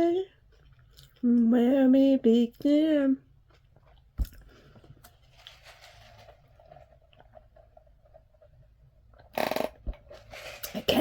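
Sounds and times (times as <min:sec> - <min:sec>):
person chewing food: 0:03.4 - 0:05.2.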